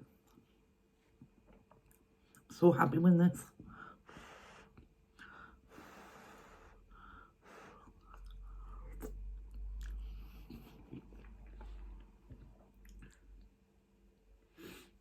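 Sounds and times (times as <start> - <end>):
breaths: 3.6 - 9.0
person chewing food: 7.7 - 13.6
wet mouth clicks: 8.0 - 13.4.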